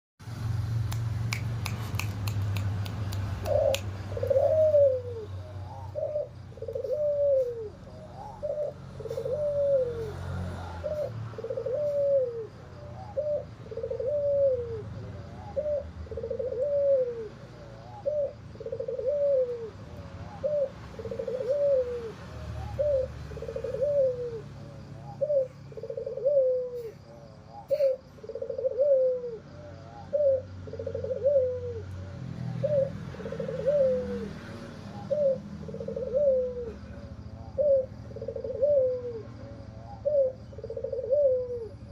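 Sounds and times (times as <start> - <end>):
sharp clicks: 0.8 - 4.0
dove cooing hoarsely: 3.3 - 41.9.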